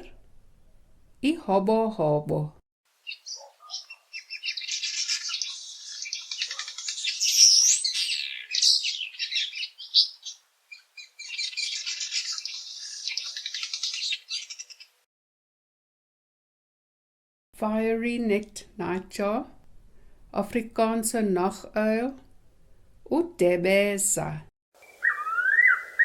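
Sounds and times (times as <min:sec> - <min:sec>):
bird buzzy chatter: 0:03.1 - 0:15.0.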